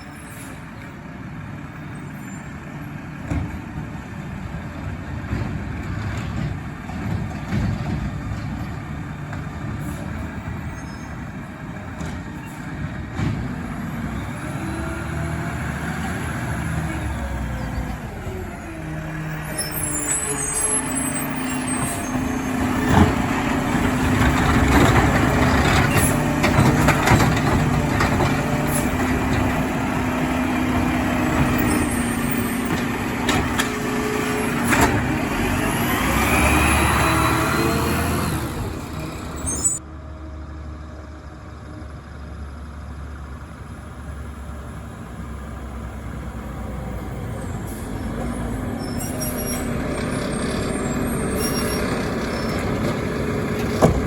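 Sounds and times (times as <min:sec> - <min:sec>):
truck engine running under load: 0:00.0 - 0:54.0
sharp knocks and clanks: 0:52.8 - 0:54.0.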